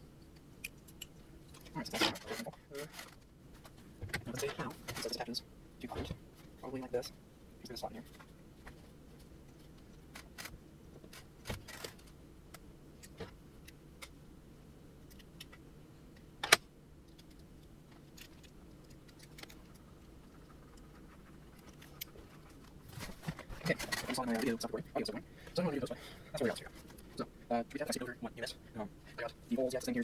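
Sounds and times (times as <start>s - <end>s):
small plastic parts clicking and rattling: 0.4s - 5.2s, 9.6s - 14.2s, 15.0s - 24.6s.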